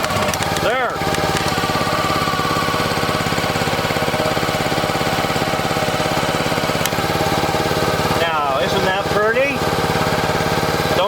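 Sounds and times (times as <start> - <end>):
small gas engine running: 0.0 - 11.0.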